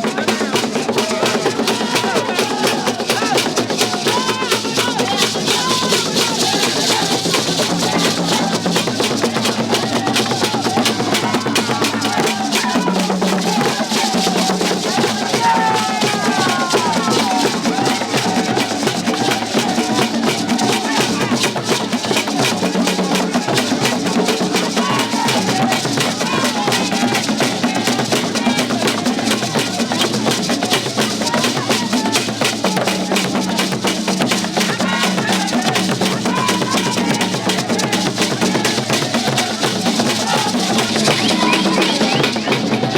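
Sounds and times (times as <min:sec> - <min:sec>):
fast dense drumming: 0:00.0 - 0:42.9
voices rising over music: 0:34.5 - 0:42.9.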